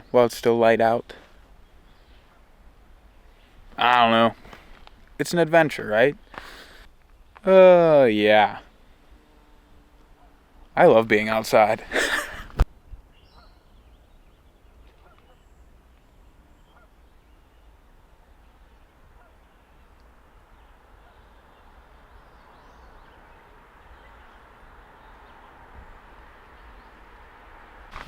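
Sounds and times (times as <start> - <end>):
outdoor hiss: 3.2 - 12.7.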